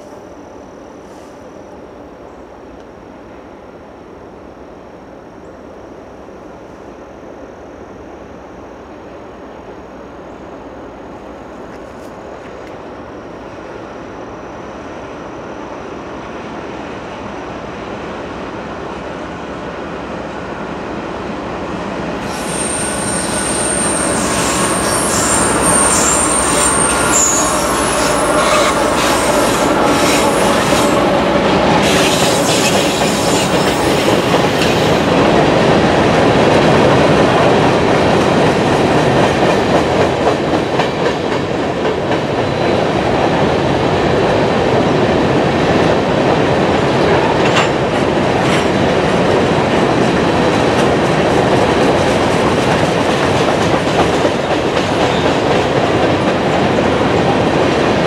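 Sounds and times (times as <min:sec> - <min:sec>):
diesel locomotives passing: 0:00.0 - 0:58.0
high metallic wheel squeal: 0:22.3 - 0:31.0.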